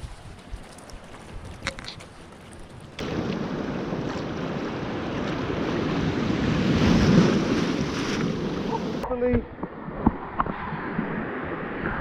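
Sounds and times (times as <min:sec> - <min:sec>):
wind buffeting microphone: 0:00.0 - 0:12.0
sea surf: 0:03.0 - 0:12.0.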